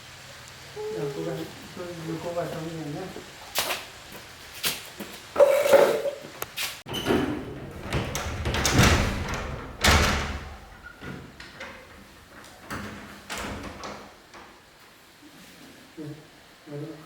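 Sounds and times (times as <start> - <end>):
knocks and thuds: 7.0 - 14.1.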